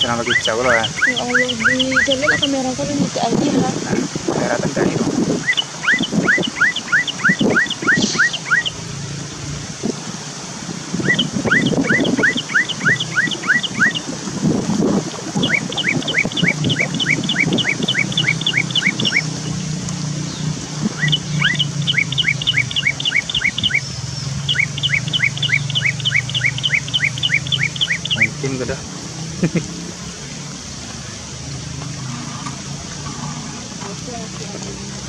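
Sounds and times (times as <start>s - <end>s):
bird whistling rising notes: 0.2s - 2.5s, 5.4s - 9.2s, 11.0s - 14.1s, 15.4s - 28.4s.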